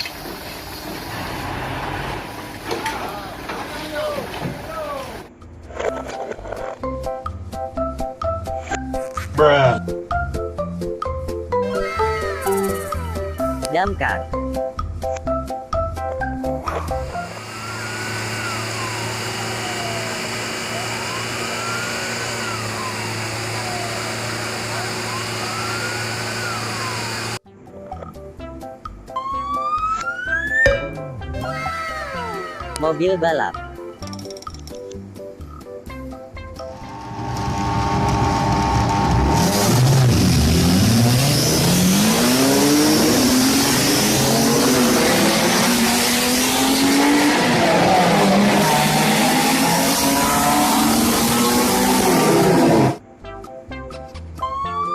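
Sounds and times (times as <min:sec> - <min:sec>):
engine rumble and hiss: 0:00.0 - 0:05.3
racing car engine revving: 0:17.0 - 0:27.4, 0:36.8 - 0:53.0
siren wailing: 0:17.1 - 0:27.4, 0:29.2 - 0:30.7, 0:41.6 - 0:53.0, 0:54.4 - 0:54.9.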